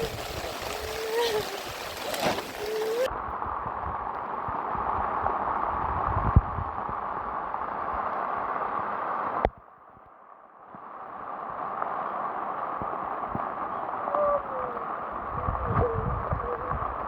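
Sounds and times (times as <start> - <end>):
short wavering calls: 0.0 - 3.1
steady rain hiss: 0.0 - 17.0.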